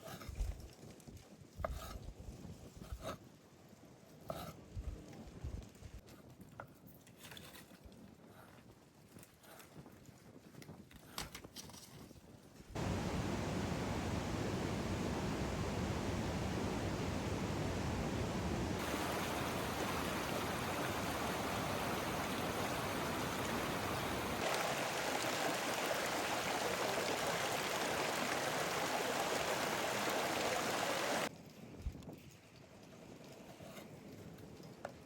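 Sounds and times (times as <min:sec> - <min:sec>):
running water rushing: 0:12.8 - 0:31.3.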